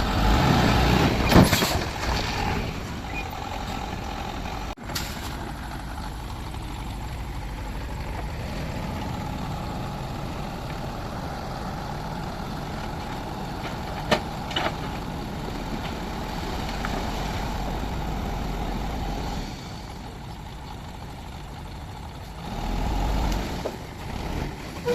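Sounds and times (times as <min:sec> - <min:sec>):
heavy diesel engine running: 0:00.0 - 0:24.9.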